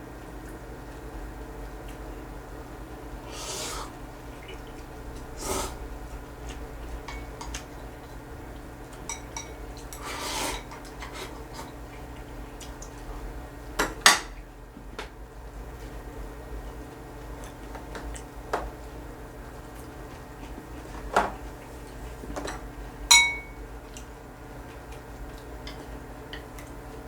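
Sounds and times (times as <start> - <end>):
eating sounds: 3.3 - 8.7
utensils clinking against bowl: 7.0 - 7.7, 9.0 - 11.7, 22.4 - 23.6.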